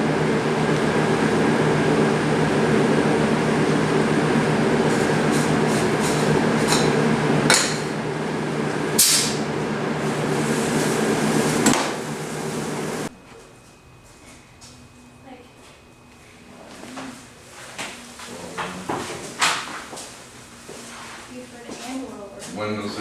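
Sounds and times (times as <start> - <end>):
spray gun hissing: 0.0 - 13.1
air compressor humming: 0.0 - 23.0.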